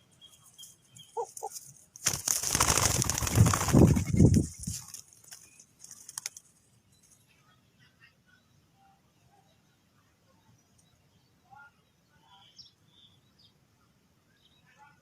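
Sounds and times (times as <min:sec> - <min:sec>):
dove wings flapping: 0:01.3 - 0:06.5.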